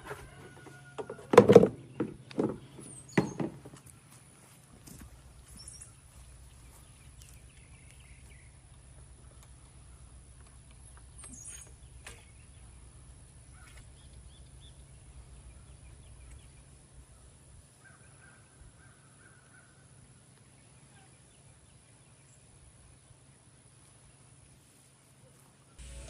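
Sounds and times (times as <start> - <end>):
distant bird calls: 1.3 - 22.4
steady low hum: 25.8 - 26.0.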